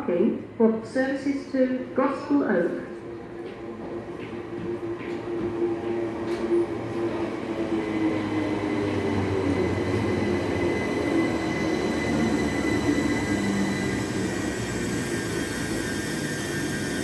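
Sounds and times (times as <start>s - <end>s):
train rumble: 3.0s - 17.0s.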